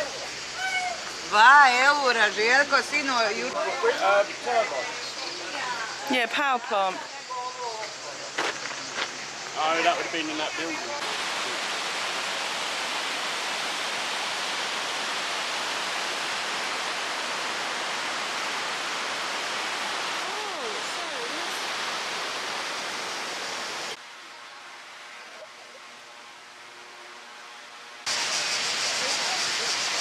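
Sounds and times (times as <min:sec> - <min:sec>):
waterfall roaring: 0:00.0 - 0:05.6, 0:08.9 - 0:24.0.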